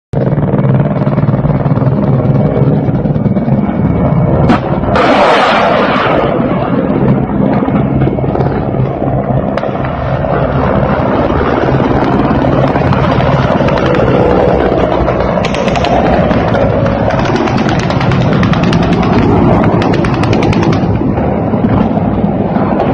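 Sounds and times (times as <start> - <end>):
low-flying helicopters rumbling: 0.1 - 22.9
gunfire: 4.5 - 6.5, 15.4 - 21.1.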